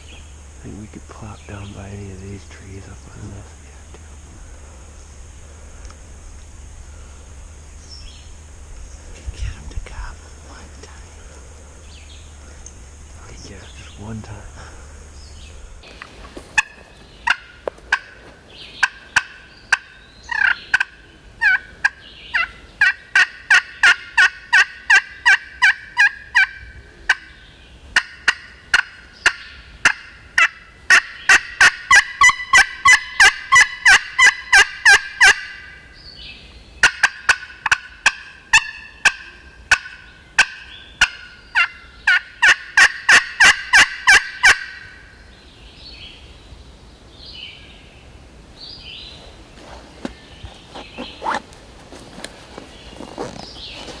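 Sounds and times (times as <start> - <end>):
turkey call yelping: 15.9 - 35.9, 36.8 - 45.2.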